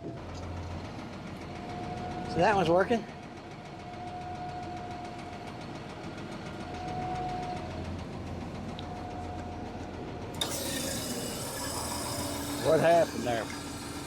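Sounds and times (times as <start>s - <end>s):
hydraulic hiss: 10.4s - 14.0s.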